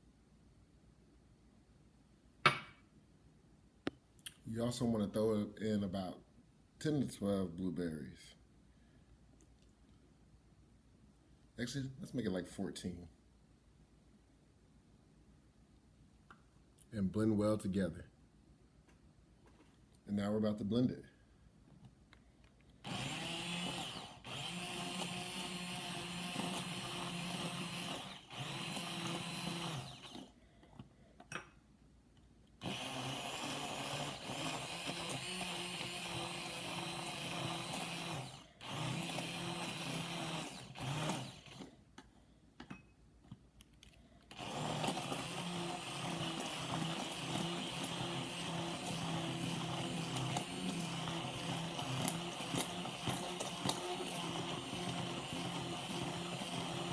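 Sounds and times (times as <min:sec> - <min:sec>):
blender motor running: 0:22.8 - 0:30.3, 0:32.6 - 0:41.7, 0:44.3 - 0:56.9.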